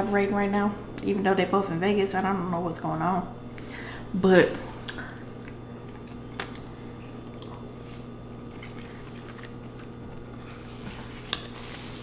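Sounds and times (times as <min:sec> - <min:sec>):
steady low hum: 0:00.0 - 0:12.0
wet chewing noodles: 0:04.7 - 0:12.0.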